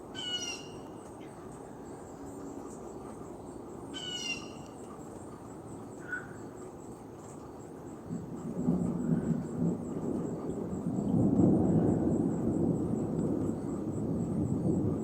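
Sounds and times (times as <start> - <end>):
thunder rumbling: 8.1 - 15.0.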